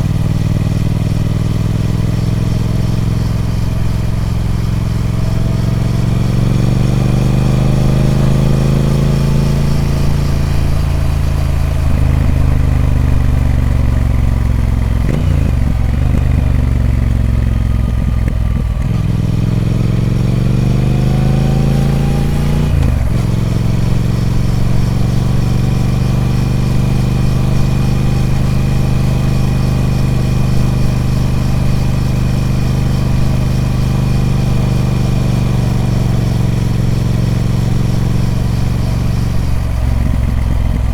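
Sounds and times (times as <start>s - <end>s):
motorcycle engine: 0.0s - 40.9s.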